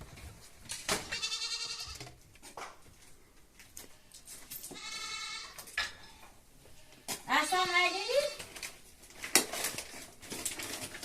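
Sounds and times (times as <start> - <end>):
goat bleating: 1.0 - 2.0, 4.7 - 5.6.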